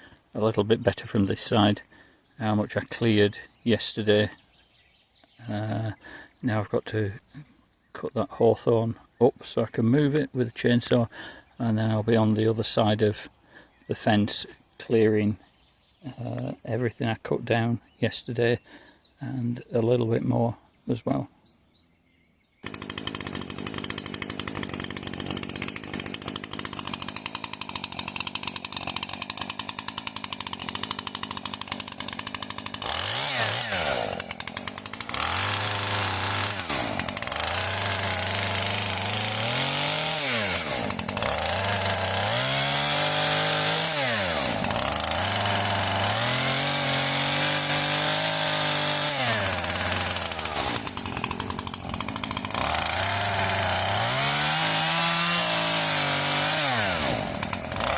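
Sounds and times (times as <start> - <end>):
chainsaw cutting wood: 22.6 - 57.9.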